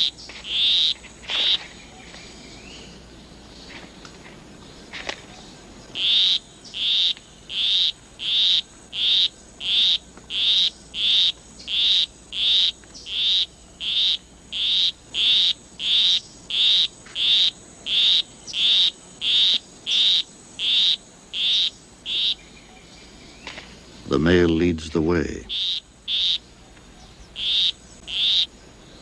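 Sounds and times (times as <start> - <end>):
frog calling with short high notes: 27.4 - 28.5.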